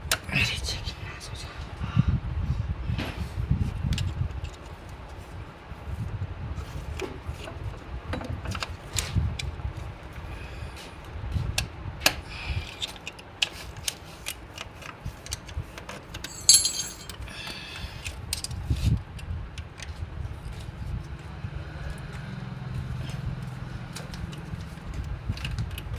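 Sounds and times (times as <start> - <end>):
metal tools clinking and scraping: 16.1 - 17.3
metallic clank: 16.2 - 17.2
loud metallic clatter: 16.3 - 17.2.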